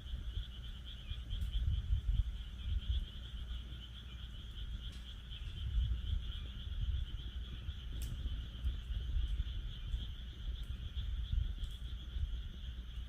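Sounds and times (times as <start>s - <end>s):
frogs calling: 0.0s - 13.0s
wood fire crackling and popping: 4.8s - 12.2s.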